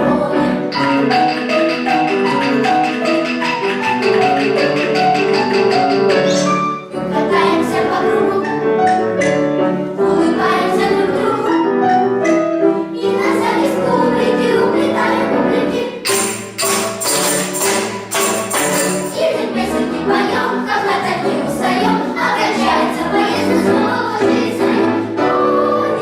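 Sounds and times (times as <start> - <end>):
lively ensemble music: 0.0 - 26.0
sharp percussion strikes: 0.7 - 6.7, 16.0 - 19.5.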